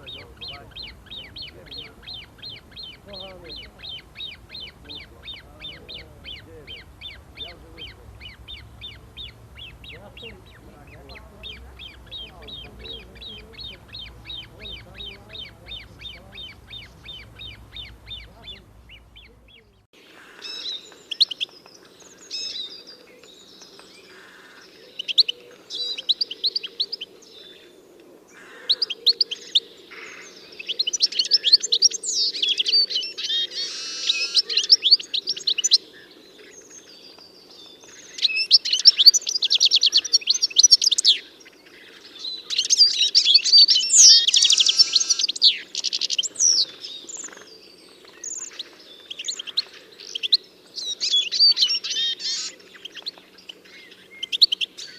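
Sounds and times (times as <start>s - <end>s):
steady low hum: 0.0s - 19.9s
songbirds chirping and trilling: 0.0s - 54.9s.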